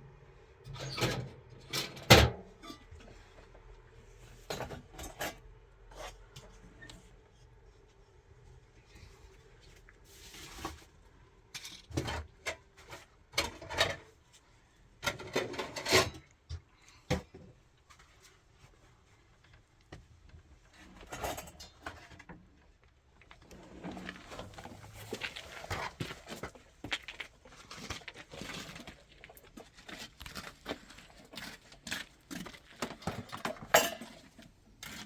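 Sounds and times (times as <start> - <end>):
objects knocking and scraping: 15.0 - 18.2, 23.3 - 35.0.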